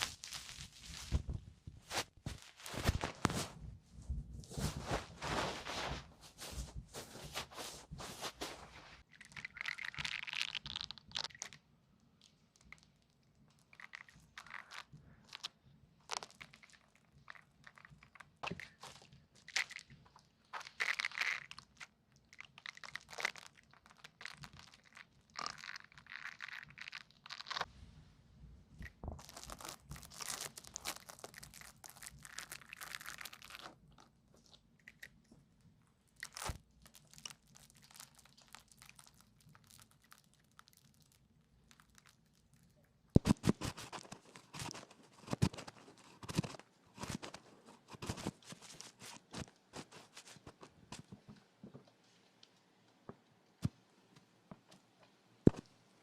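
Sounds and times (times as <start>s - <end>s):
ear-cleaning scratching and crackling: 0.0s - 3.6s.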